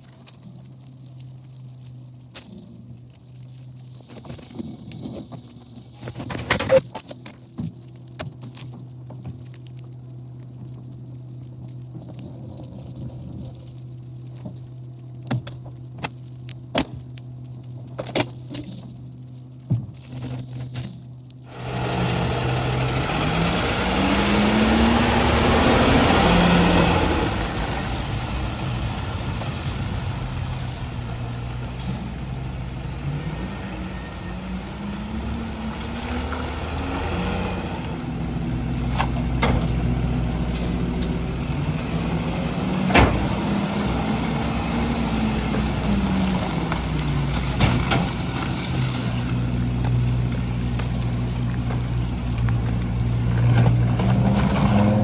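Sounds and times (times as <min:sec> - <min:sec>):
garbage truck engine revving: 0:21.5 - 0:55.0.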